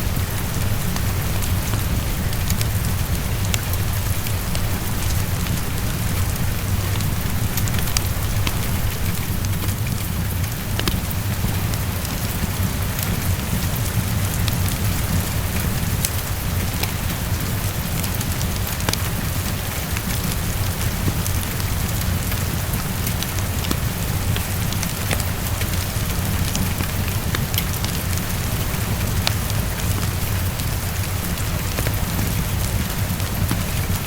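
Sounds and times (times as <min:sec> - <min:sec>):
heavy rain on a window: 0:00.0 - 0:34.0
wood fire crackling: 0:00.0 - 0:34.0.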